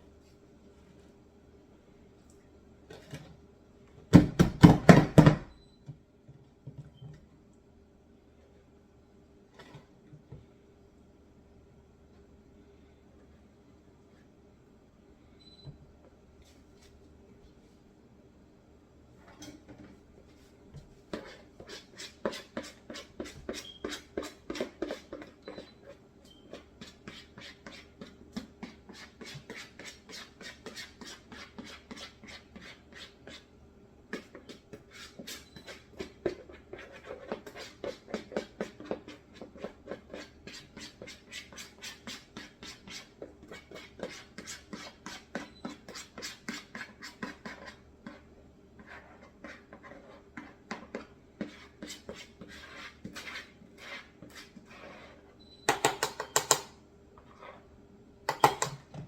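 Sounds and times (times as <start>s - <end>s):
utensil scraping in batter: 20.4s - 56.2s.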